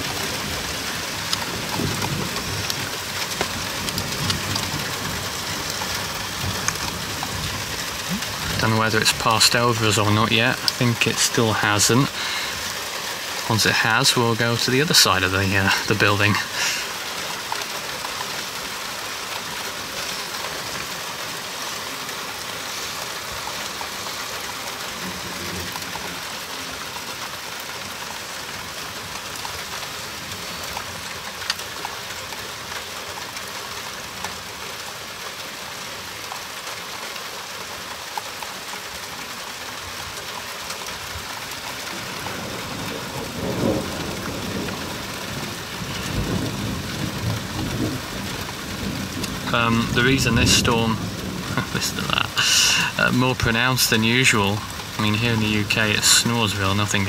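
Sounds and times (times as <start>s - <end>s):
low thunder rumble: 0.0s - 9.2s, 41.9s - 53.0s
steady rain falling: 0.0s - 57.0s.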